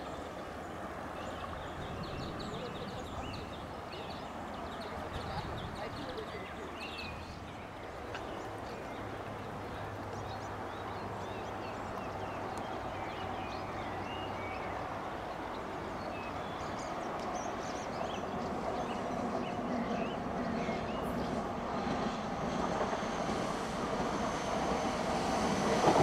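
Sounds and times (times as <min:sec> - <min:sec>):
birds chirping: 0:00.0 - 0:26.0
train approaching: 0:00.0 - 0:26.0.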